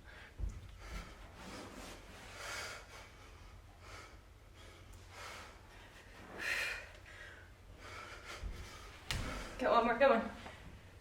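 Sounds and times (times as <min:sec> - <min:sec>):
woman breathing hard: 0:02.2 - 0:09.6.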